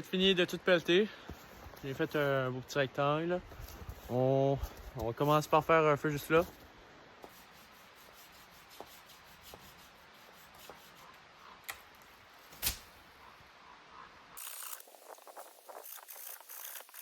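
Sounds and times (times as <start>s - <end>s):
sticks rustling and crackling: 11.6s - 13.0s
twigs snapping: 11.6s - 13.0s.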